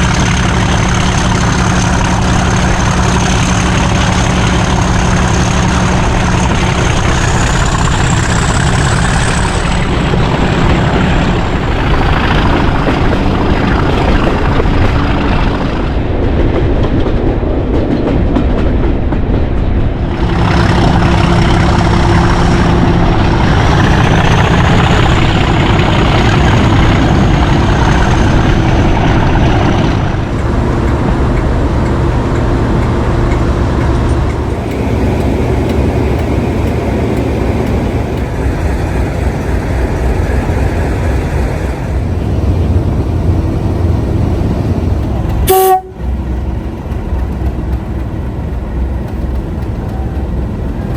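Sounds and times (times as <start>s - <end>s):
diesel locomotive engine working: 0.0s - 50.9s.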